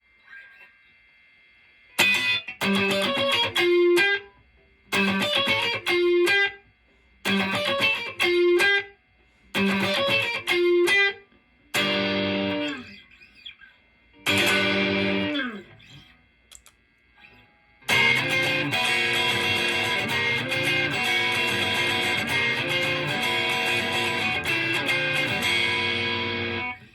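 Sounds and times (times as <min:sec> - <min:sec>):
electric guitar picked phrase: 0:02.0 - 0:04.2, 0:05.0 - 0:06.6, 0:07.3 - 0:08.9, 0:09.6 - 0:11.2, 0:11.8 - 0:13.0, 0:14.2 - 0:15.9, 0:17.8 - 0:26.9
loud electric guitar strumming: 0:02.0 - 0:04.2, 0:04.9 - 0:06.5, 0:07.3 - 0:08.8, 0:09.6 - 0:11.2, 0:11.8 - 0:13.0, 0:14.2 - 0:15.9, 0:17.8 - 0:26.8
electric guitar chords ringing: 0:02.0 - 0:06.6, 0:07.2 - 0:08.9, 0:09.6 - 0:13.5, 0:14.1 - 0:16.2, 0:17.2 - 0:26.9.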